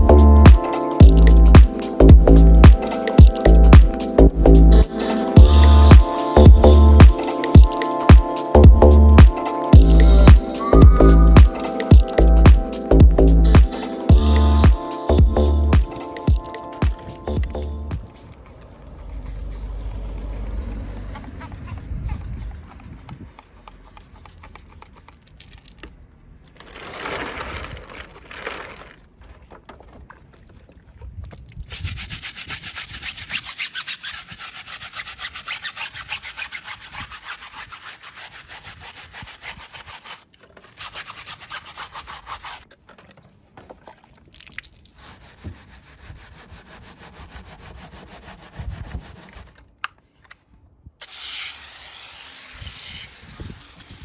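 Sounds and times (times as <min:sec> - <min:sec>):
brush scrubbing: 0:00.0 - 0:25.3, 0:31.7 - 0:42.7, 0:44.8 - 0:49.6.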